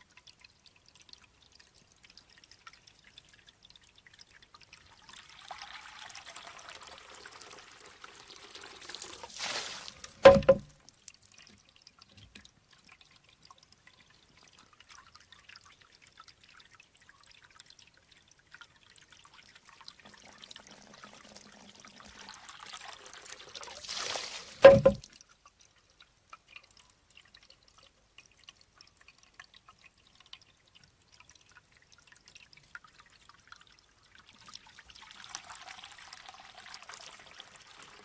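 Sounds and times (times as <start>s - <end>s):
water trickling: 0.0s - 38.0s
water rushing from bamboo tube: 5.0s - 10.8s, 19.9s - 25.2s
hollow bamboo clack on stone: 10.0s - 10.8s, 24.6s - 25.0s.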